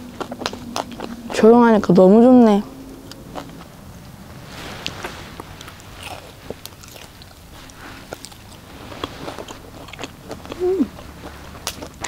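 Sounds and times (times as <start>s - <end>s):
person chewing meat: 0.0s - 1.4s, 2.9s - 3.7s, 4.8s - 12.0s.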